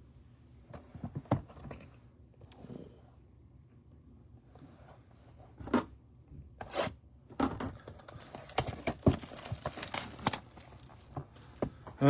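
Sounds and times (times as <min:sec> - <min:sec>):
cards rustling: 0:08.2 - 0:11.7.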